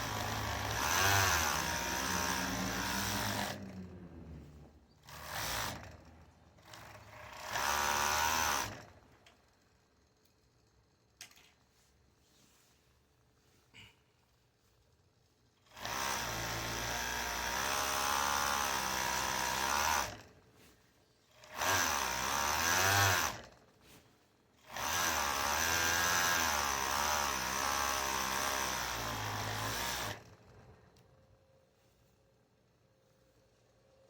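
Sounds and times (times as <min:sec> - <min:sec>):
sewing machine stitching: 0:05.0 - 0:06.0, 0:06.6 - 0:09.0.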